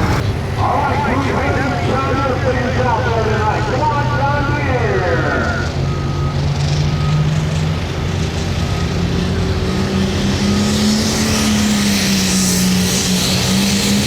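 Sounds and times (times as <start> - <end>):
tractor diesel engine running: 0.0 - 14.0
faint reversing beeper: 0.6 - 9.0.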